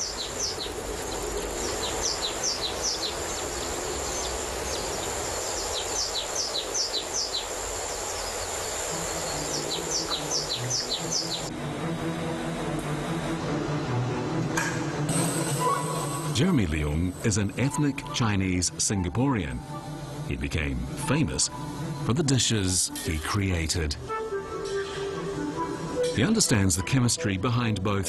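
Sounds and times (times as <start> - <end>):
high-pitched insect buzz: 0.0 - 11.5
songbird whistling downward notes: 8.1 - 11.5.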